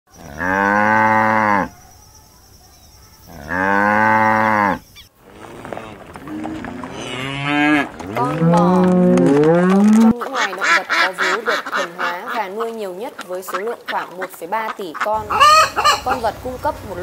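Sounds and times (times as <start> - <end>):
cow mooing loudly: 0.2 - 1.7, 3.4 - 10.2
cattle lowing: 3.3 - 16.3.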